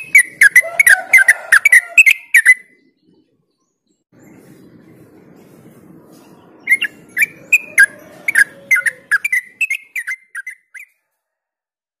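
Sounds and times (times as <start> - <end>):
bird singing whistled notes: 6.6 - 10.9.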